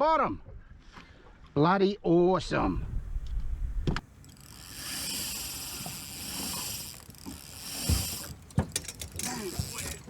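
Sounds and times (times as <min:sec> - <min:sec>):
fishing line whining off reel: 0:04.0 - 0:10.0
sharp reel click: 0:04.2 - 0:08.4.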